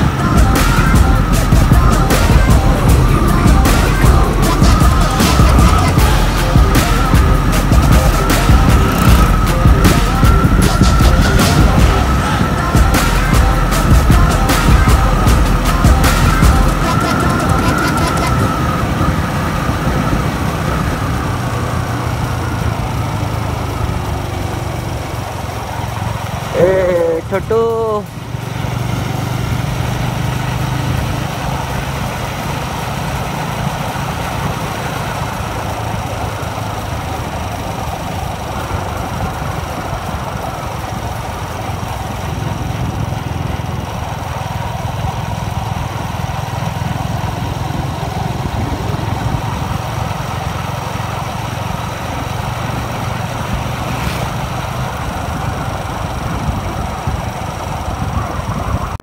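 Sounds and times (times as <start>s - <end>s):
motorcycle engine running: 0.0s - 59.0s
wind on microphone: 52.6s - 59.0s.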